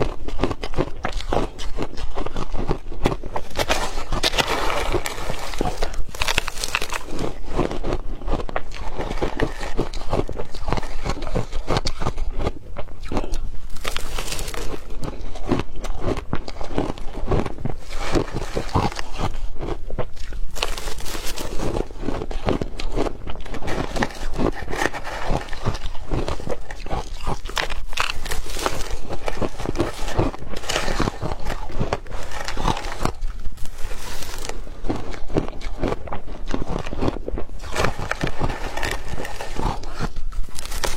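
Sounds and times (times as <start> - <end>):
chewing crushed ice: 0.0 - 40.9.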